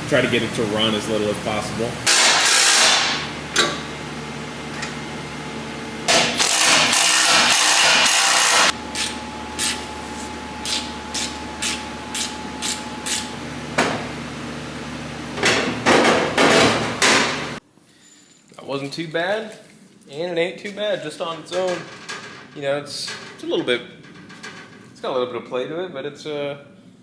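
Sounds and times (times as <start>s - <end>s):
power tool running: 0.0s - 17.6s.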